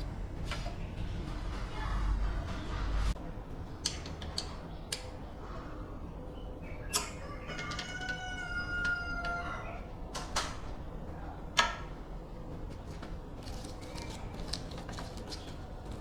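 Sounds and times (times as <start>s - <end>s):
rooster crowing: 7.1s - 9.9s.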